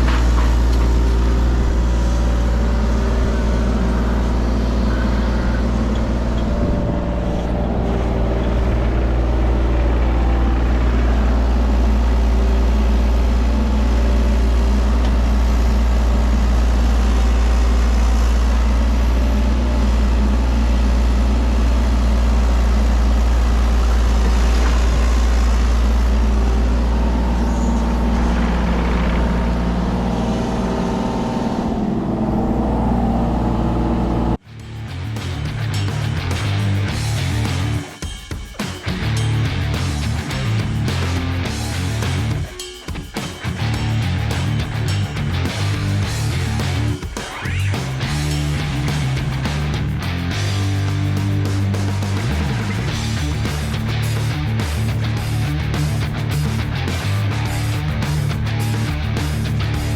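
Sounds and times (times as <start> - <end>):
diesel engine running: 0.0 - 38.0, 38.9 - 42.5, 43.5 - 59.9.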